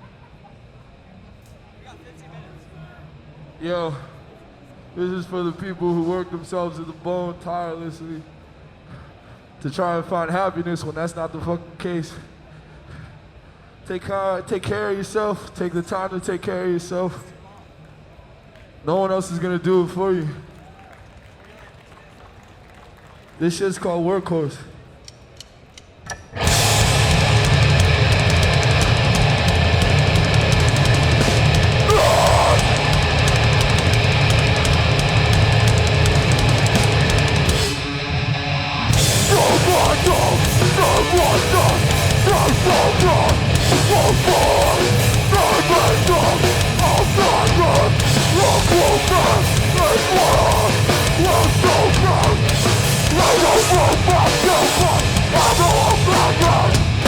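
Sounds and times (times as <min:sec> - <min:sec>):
heavy live band playing: 0:26.4 - 0:57.0.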